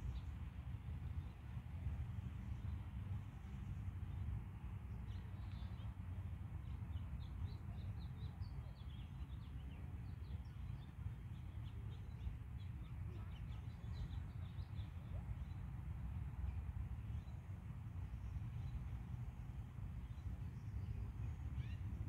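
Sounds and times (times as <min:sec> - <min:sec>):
small birds chirping: 0:20.0 - 0:22.0.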